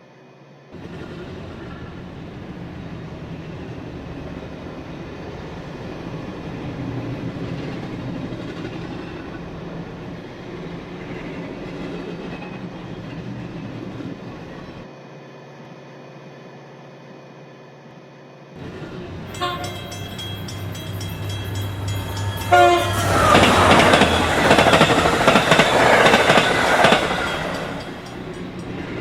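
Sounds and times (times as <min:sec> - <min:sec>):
train rumbling on rails: 0:00.8 - 0:14.9, 0:18.6 - 0:29.0.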